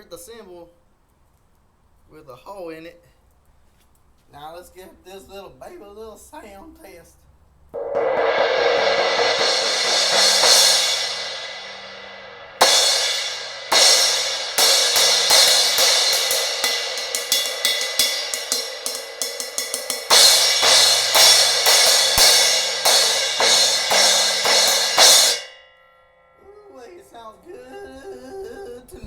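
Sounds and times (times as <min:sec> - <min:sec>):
quick cymbal strokes: 0:07.8 - 0:25.6
cymbal hits: 0:07.8 - 0:27.3
crash cymbal ringing: 0:07.8 - 0:27.6.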